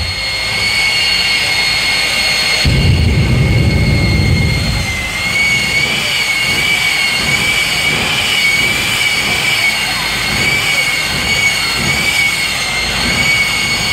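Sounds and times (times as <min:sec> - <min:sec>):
turbine engine whine: 0:00.0 - 0:13.9
deep rumble: 0:02.7 - 0:06.6.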